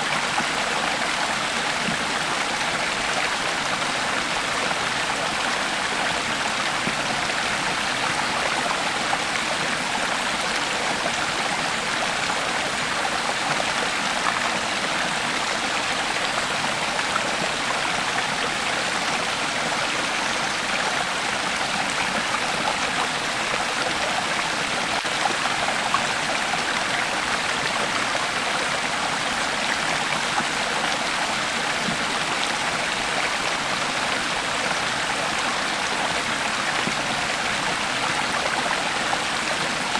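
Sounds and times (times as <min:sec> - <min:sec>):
creek flowing over stones: 0:00.0 - 0:39.9.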